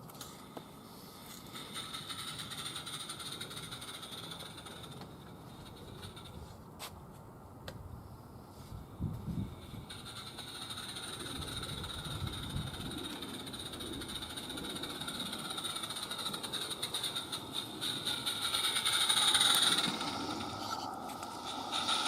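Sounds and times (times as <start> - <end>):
rapid steam exhaust beats: 0.3 - 6.9, 8.0 - 22.0
steam hiss: 17.8 - 22.0.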